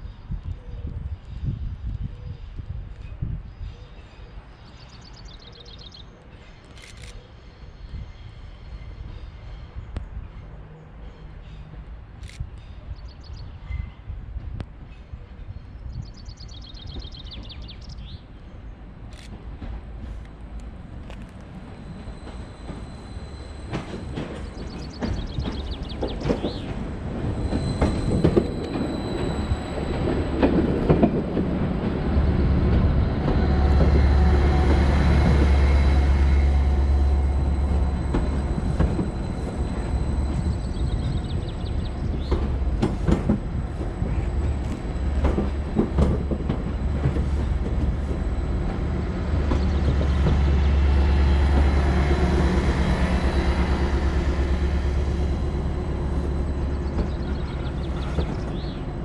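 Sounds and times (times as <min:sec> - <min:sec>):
deep diesel train rumble: 0:00.0 - 0:59.0
thin high whine: 0:20.7 - 0:59.0.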